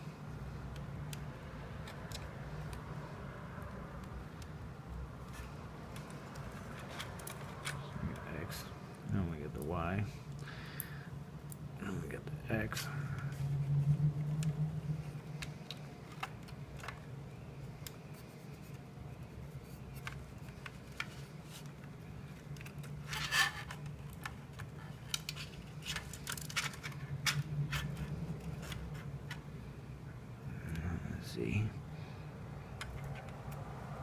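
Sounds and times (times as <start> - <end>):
wires and connectors clicking: 0.6 - 10.5, 14.2 - 29.6, 32.7 - 33.7
low hum: 10.1 - 18.0.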